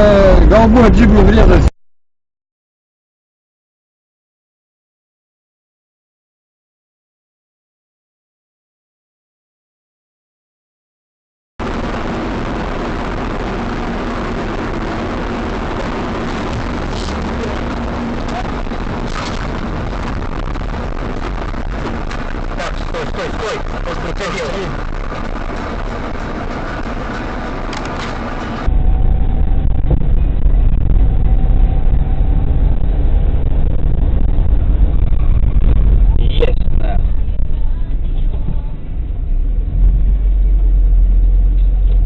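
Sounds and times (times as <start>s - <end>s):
car engine and road noise: 0.0s - 1.7s, 11.6s - 42.0s.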